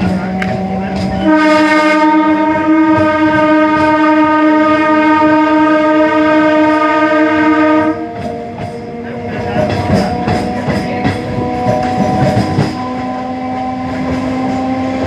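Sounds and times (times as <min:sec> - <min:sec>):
train air horn blast: 0:01.1 - 0:08.2.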